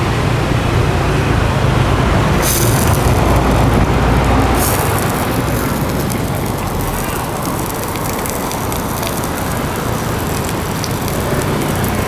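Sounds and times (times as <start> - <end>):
street traffic rumble: 0.0 - 12.0
high hiss: 2.4 - 12.0.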